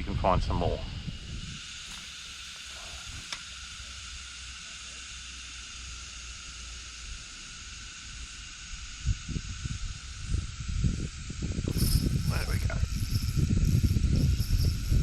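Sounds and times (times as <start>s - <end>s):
wind rumble on microphone: 0.0s - 1.9s, 8.8s - 15.0s
high-pitched insect drone: 0.0s - 15.0s.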